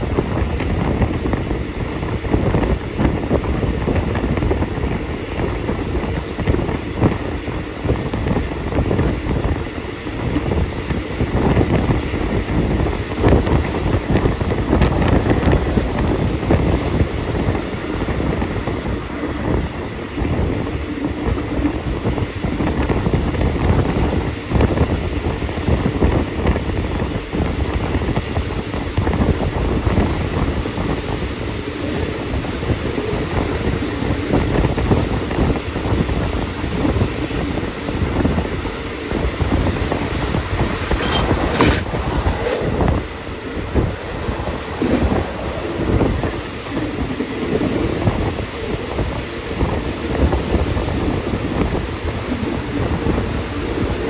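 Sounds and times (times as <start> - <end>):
train rumbling on rails: 0.0 - 54.0
wind buffeting microphone: 0.0 - 54.0.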